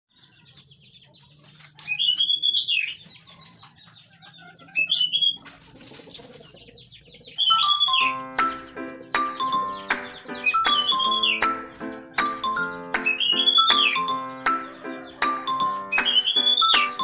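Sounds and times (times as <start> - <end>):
songbird singing: 0.1 - 17.0
plinking melody: 7.4 - 17.0.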